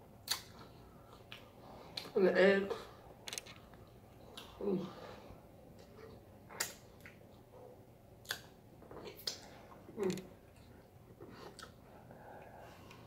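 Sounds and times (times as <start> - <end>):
lip smacks: 0.2 - 2.1, 6.5 - 7.2, 8.2 - 9.6
person chewing with wet mouth sounds: 0.2 - 2.1, 4.1 - 4.6, 8.2 - 13.0.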